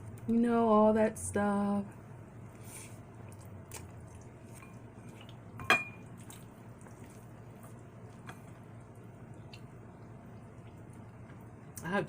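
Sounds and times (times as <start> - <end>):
small clicks of eating: 3.2 - 5.4, 6.2 - 11.9
utensil clinking against a dish: 5.6 - 6.1.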